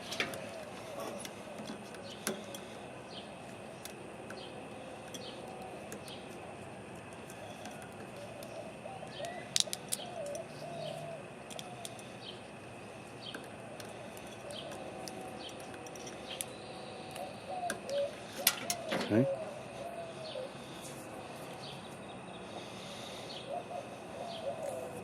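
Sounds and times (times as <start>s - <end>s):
dove cooing: 0.0s - 3.0s, 7.3s - 12.3s, 13.2s - 21.4s, 22.7s - 25.0s.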